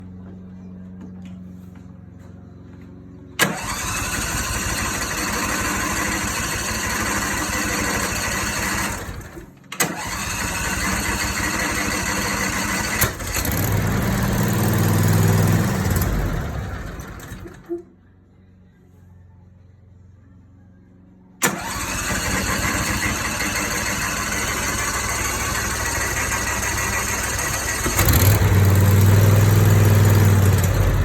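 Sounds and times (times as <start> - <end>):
engine cranking with electric starter: 3.4 - 17.8, 21.4 - 31.0.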